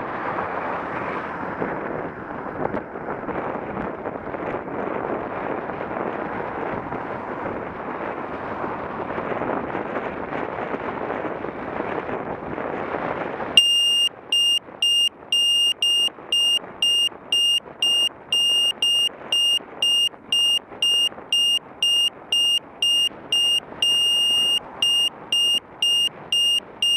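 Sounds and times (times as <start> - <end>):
wind rushing over microphone: 0.0 - 26.9
electronic beeping: 13.6 - 26.9.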